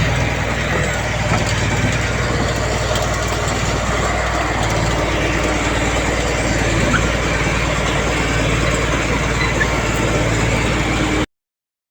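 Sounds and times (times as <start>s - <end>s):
heavy diesel engine running: 0.0s - 11.3s.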